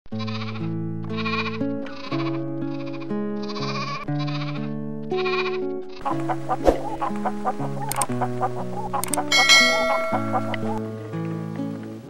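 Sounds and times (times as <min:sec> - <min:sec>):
sheep bleating: 0:00.1 - 0:05.8
background music with sustained chords: 0:04.8 - 0:12.0.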